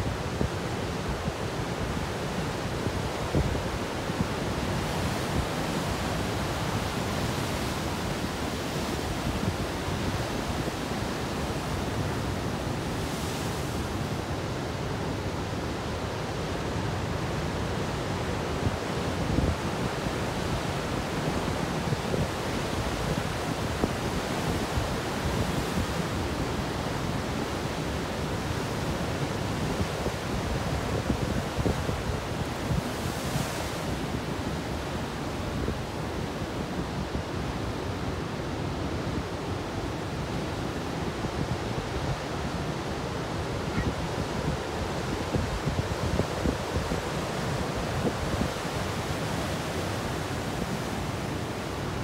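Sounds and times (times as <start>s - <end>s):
wind buffeting the microphone: 29.3s - 34.5s, 39.8s - 52.0s.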